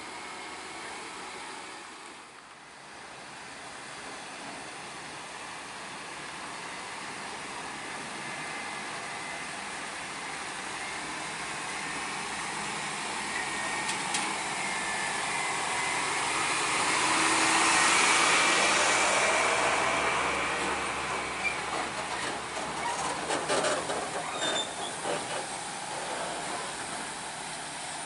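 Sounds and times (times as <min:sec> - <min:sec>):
heavy truck passing: 0:05.7 - 0:28.0.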